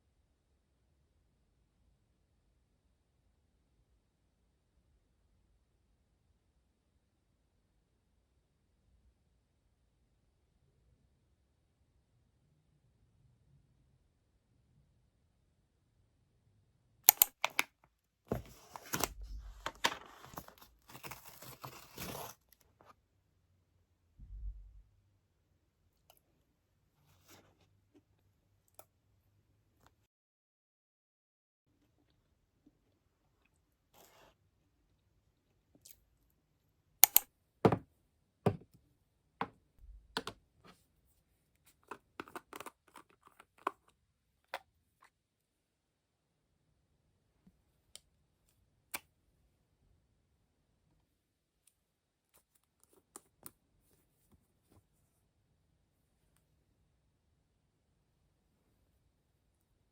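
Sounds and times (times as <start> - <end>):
crinkling and tearing: 18.3 - 22.6
sharp clicks: 37.0 - 37.2
sharp clicks and taps: 37.0 - 37.8.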